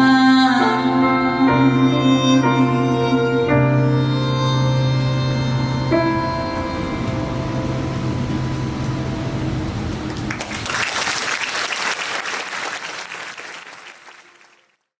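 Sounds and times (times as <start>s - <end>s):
audience applause: 10.1s - 14.9s.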